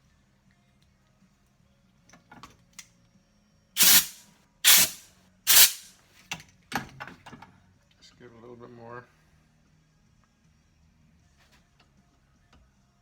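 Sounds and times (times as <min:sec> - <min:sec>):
hissing spray blasts: 0:03.8 - 0:05.9.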